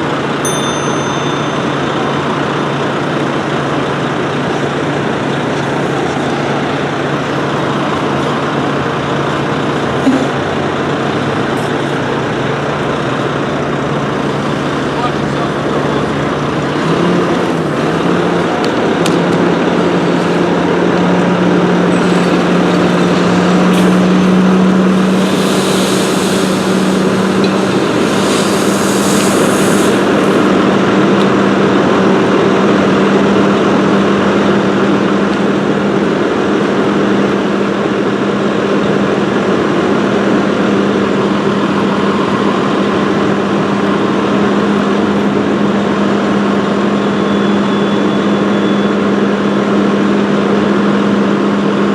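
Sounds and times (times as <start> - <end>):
fire engine running: 0.0 - 51.9
bursts of hiss: 24.8 - 30.6.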